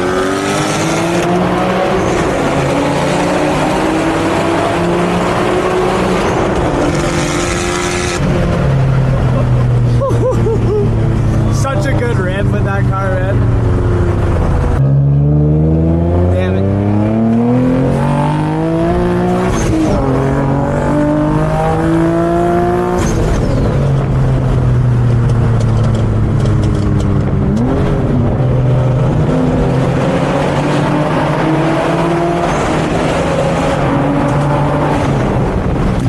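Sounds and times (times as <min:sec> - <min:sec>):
car engine accelerating hard: 0:00.0 - 0:36.0.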